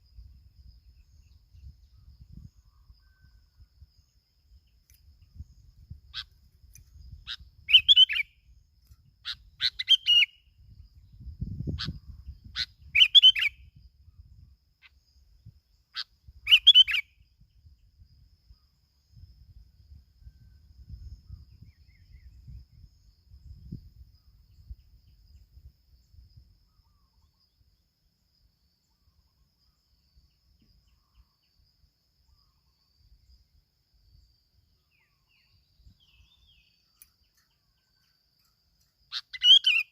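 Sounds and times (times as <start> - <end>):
bird chirping calls: 5.8 - 10.6, 11.2 - 13.7, 15.9 - 17.2, 34.8 - 39.9.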